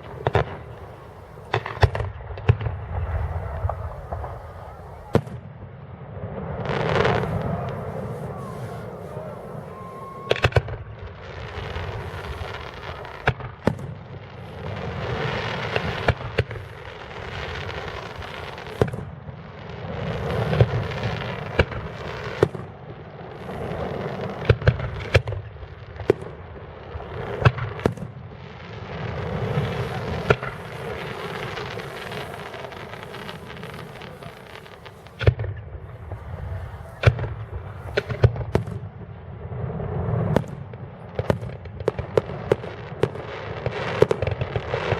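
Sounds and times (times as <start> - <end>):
fireworks bursting bangs: 0.0 - 44.9
swells of noise: 2.7 - 5.3, 5.9 - 13.3, 29.0 - 38.2.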